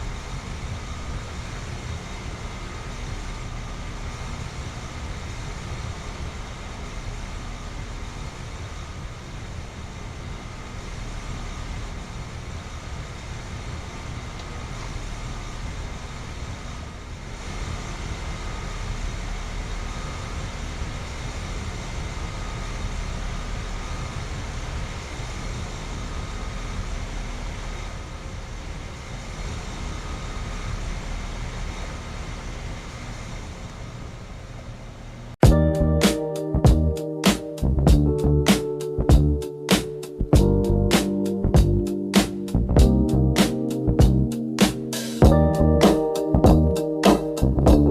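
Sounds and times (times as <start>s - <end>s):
condenser fan rush: 0.0s - 35.3s
low compressor hum: 35.4s - 47.9s.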